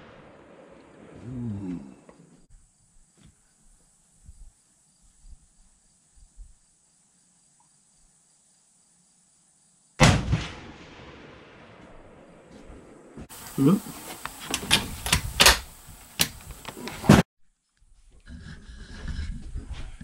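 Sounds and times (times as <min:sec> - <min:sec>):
rifle shot: 0:10.0 - 0:12.5.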